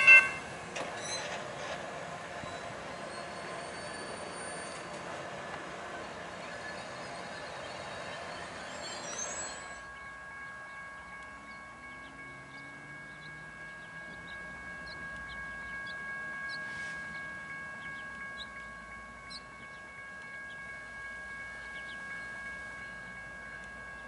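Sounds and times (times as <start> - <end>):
chime-like chord of high tones: 0.0 - 0.6, 6.0 - 24.0
high wheel squeal: 0.0 - 1.8, 2.4 - 19.5
train rolling past: 0.0 - 24.0.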